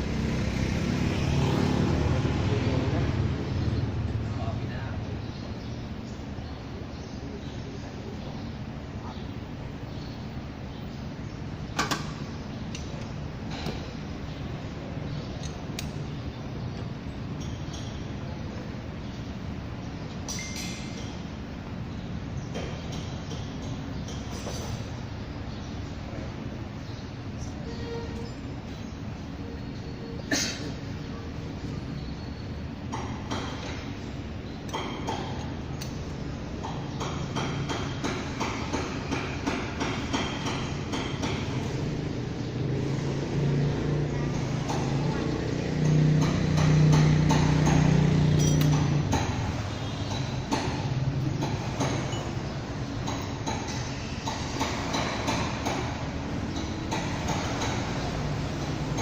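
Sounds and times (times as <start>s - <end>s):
metal tools clinking on metal: 20.2s - 21.2s, 48.3s - 49.1s, 51.9s - 52.4s
tools knocking on metal: 36.6s - 41.6s, 45.8s - 59.0s.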